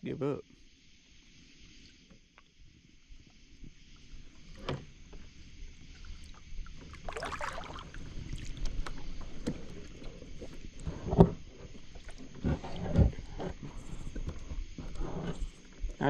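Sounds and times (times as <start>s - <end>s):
short water splash: 6.0s - 10.6s.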